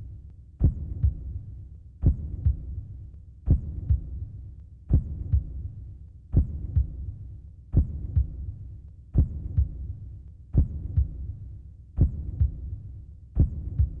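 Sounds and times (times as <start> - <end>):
heartbeat thumps: 0.6 - 14.0.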